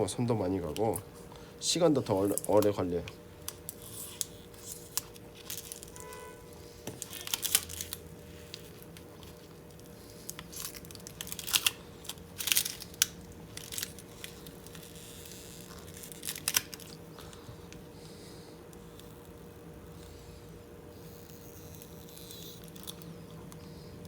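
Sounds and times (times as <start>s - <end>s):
plastic film peeling and tearing: 2.1s - 17.0s.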